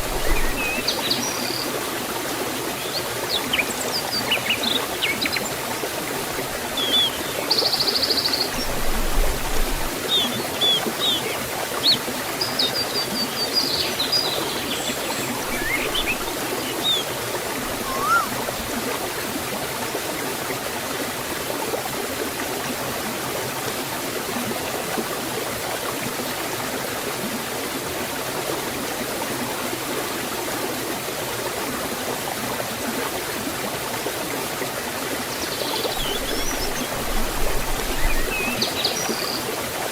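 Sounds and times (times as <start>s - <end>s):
stream and waterfall rushing: 0.0s - 39.9s
small birds chirping: 10.1s - 18.4s, 35.4s - 39.4s.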